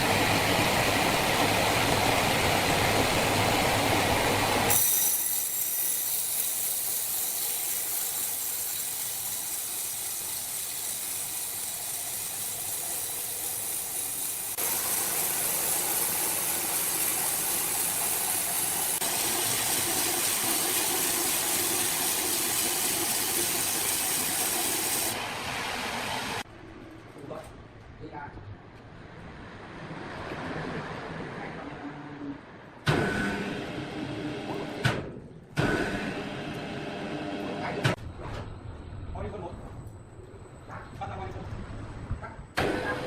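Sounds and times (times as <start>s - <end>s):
sawmill machinery running: 0.0s - 26.4s.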